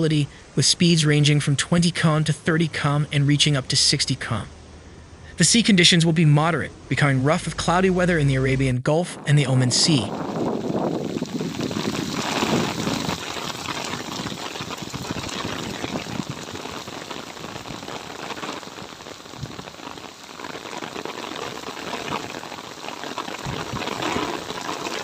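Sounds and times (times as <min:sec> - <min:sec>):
rain falling: 0:08.3 - 0:25.0.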